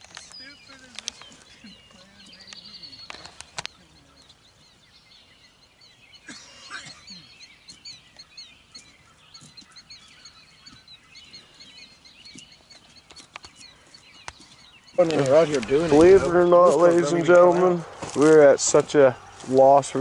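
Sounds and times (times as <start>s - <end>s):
sharp clicks: 0.0s - 1.4s, 2.4s - 3.8s, 13.0s - 13.6s
rough bird call: 0.0s - 18.0s
birds chirping: 0.0s - 20.0s.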